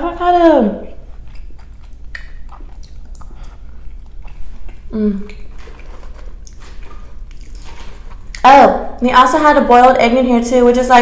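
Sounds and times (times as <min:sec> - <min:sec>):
closed-mouth hum: 0:00.0 - 0:07.4
chewing crunchy salad: 0:00.9 - 0:08.5.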